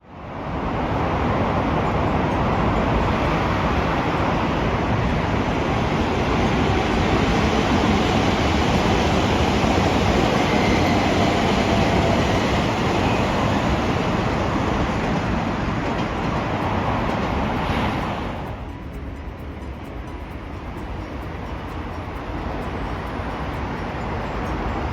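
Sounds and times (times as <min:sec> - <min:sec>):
train rumbling past: 0:00.0 - 0:24.9.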